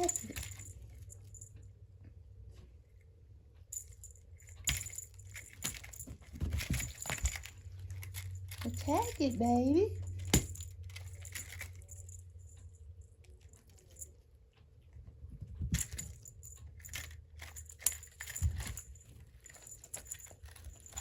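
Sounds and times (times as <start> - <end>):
cat toy rattling: 0.0 - 1.6, 3.7 - 14.2, 15.3 - 21.0
soft thumps: 4.6 - 8.6.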